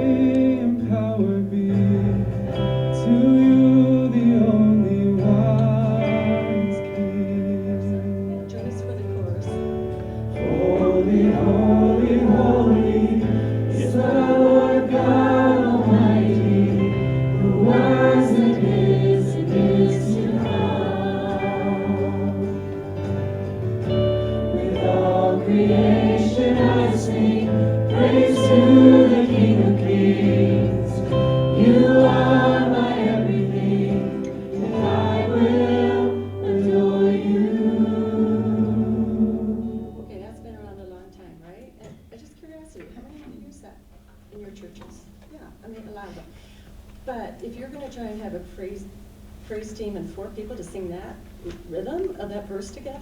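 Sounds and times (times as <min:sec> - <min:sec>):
sustained low instrumental chords: 0:00.0 - 0:41.0
person singing with vibrato: 0:10.4 - 0:40.1.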